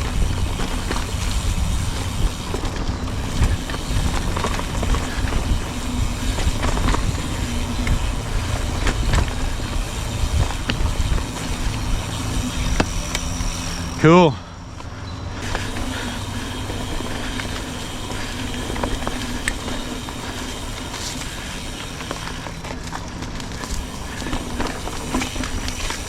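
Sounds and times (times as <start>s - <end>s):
bike clicks and rattles: 0.0s - 14.0s, 14.7s - 26.0s
wind on microphone: 0.0s - 14.0s
tyres rumbling on dirt: 0.0s - 26.0s.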